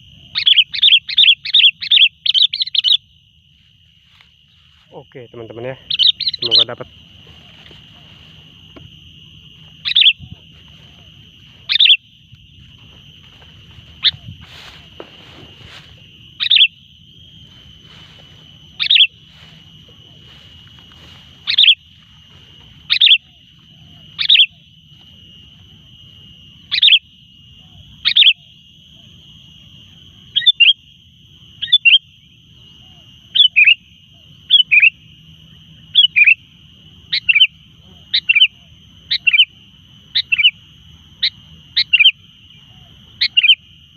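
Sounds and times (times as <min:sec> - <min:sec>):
bulbul calling: 0:00.0 - 0:03.1, 0:05.4 - 0:16.8, 0:17.5 - 0:25.1, 0:26.7 - 0:28.5, 0:32.8 - 0:35.0, 0:35.9 - 0:36.4, 0:37.0 - 0:40.6, 0:41.2 - 0:43.7.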